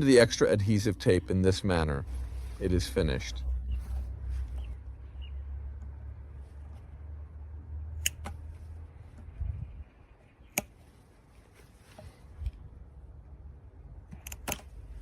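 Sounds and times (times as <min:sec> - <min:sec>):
low rumble: 0:00.0 - 0:10.0
sharp clicks: 0:08.0 - 0:08.5, 0:10.4 - 0:10.8, 0:14.0 - 0:14.8.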